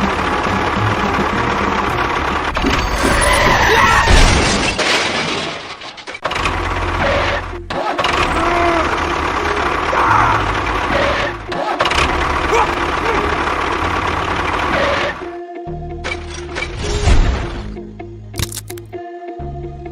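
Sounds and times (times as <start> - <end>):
engine running: 0.0 - 3.4, 6.2 - 15.4.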